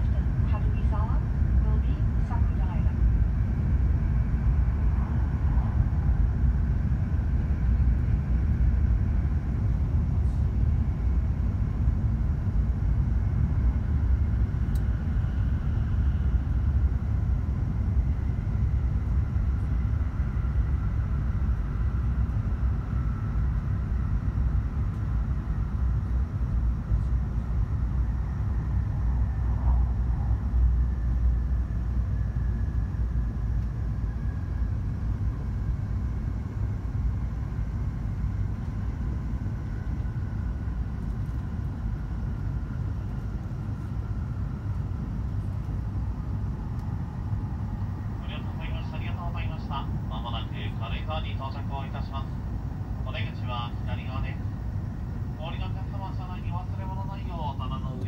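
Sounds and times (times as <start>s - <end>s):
faint train whine: 0.0s - 58.0s
train running rumble: 0.0s - 58.0s.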